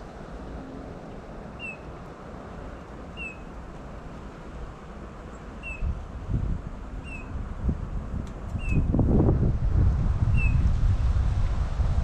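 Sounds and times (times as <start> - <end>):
low outdoor background noise: 0.0 - 8.6
small bird calling: 1.6 - 1.9, 3.2 - 3.5, 5.6 - 5.9, 7.0 - 7.3.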